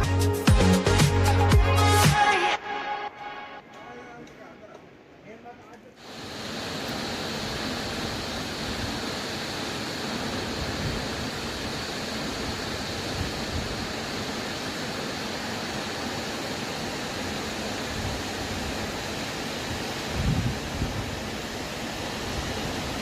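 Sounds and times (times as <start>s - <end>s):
waterfall rushing: 6.0s - 23.0s.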